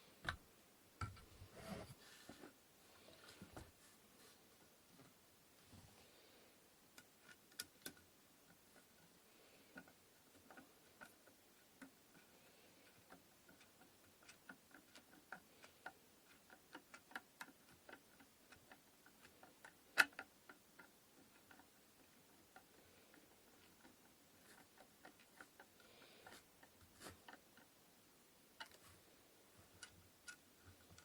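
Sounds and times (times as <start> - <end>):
wooden parts clicking and tapping: 0.2 - 0.4, 1.0 - 1.4, 6.9 - 31.0.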